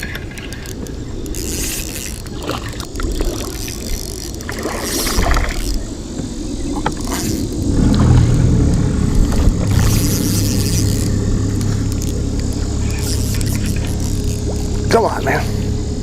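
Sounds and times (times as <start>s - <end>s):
water wash: 1.8s - 16.0s
low rumble: 5.1s - 16.0s.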